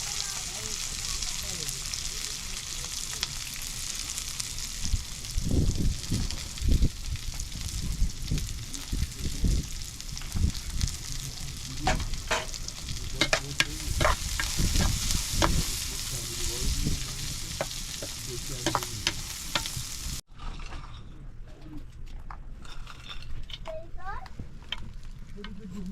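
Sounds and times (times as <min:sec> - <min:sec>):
food sizzling in a pan: 0:00.0 - 0:20.2
utensils clinking and scraping pan: 0:11.1 - 0:20.2.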